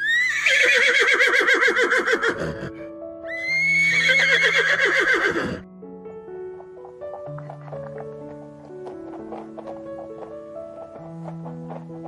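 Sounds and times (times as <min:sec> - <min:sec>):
horse whinnying: 0:00.0 - 0:05.6.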